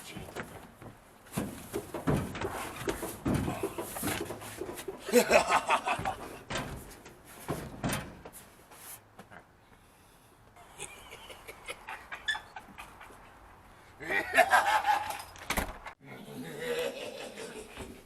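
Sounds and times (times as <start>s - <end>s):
person laughing: 5.0s - 6.4s, 10.6s - 13.3s, 14.0s - 15.3s, 16.3s - 18.0s.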